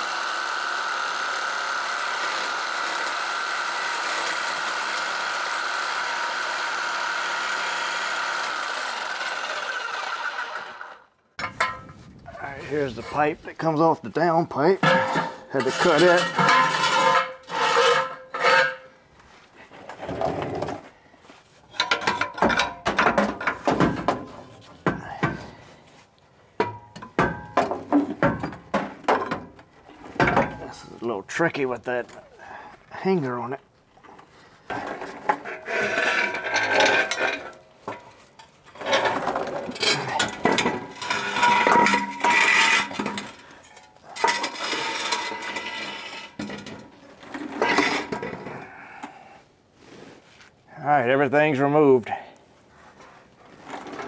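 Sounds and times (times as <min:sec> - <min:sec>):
metallic clanks and knocks: 0:11.4 - 0:12.0, 0:14.8 - 0:18.9, 0:21.7 - 0:25.5, 0:26.6 - 0:30.8, 0:35.2 - 0:48.5
exhaust pipe scraping: 0:11.4 - 0:21.8, 0:34.6 - 0:48.6.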